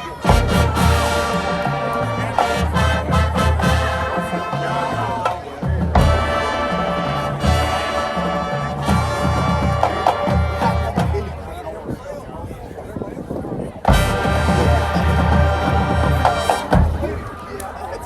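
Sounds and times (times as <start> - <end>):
marching band brass chords: 0.0 - 11.6, 13.8 - 18.0
full band accented hit: 0.1 - 11.4, 13.9 - 17.4
bass drum strikes: 13.9 - 17.2.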